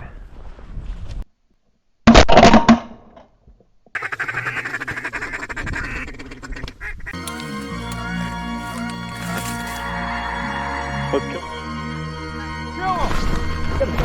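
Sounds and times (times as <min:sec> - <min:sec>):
duck quacking: 0:04.0 - 0:07.1
music: 0:07.2 - 0:14.0.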